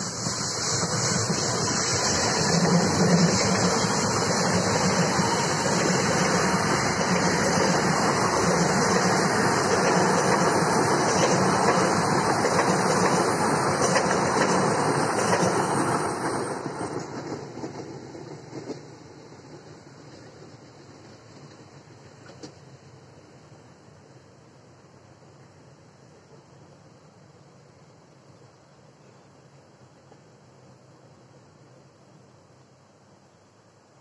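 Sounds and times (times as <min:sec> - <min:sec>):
train wheels rolling on rails: 0:00.0 - 0:24.1
diesel locomotive engine: 0:00.0 - 0:33.1.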